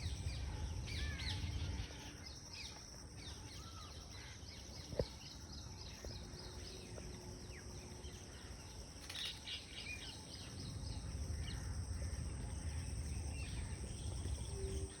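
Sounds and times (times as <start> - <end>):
low rumble: 0.0 - 2.0, 10.4 - 15.0
high insect drone: 0.0 - 15.0.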